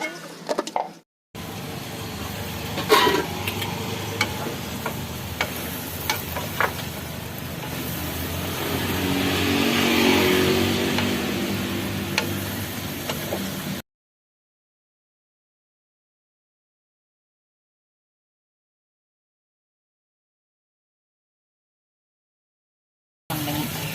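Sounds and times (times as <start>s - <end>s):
food sizzling in a pan: 1.4s - 13.8s, 23.3s - 23.9s.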